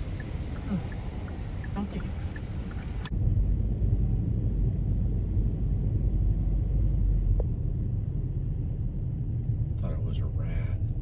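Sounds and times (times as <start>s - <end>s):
wind buffeting microphone: 0.0s - 3.1s.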